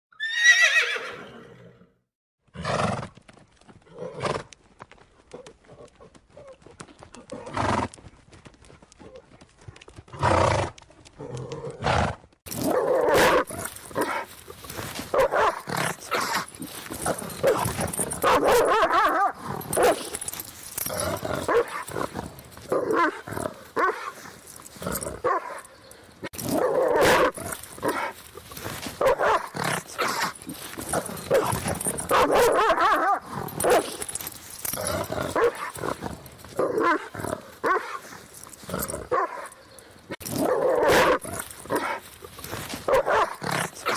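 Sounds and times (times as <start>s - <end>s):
dogs barking and growling: 12.5s - 43.9s.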